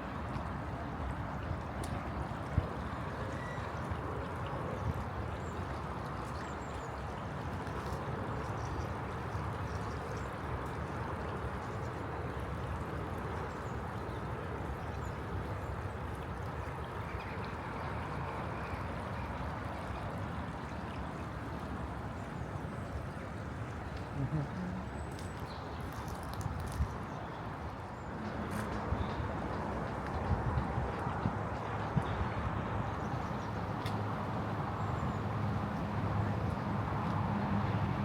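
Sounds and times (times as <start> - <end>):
floodwater rushing: 14.6 - 31.6.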